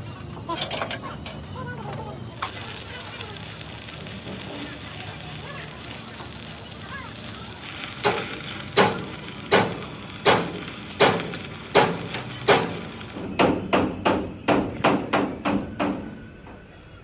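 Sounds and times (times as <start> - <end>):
steady hiss: 2.3 - 13.3
hammer striking steel frame: 5.7 - 16.1.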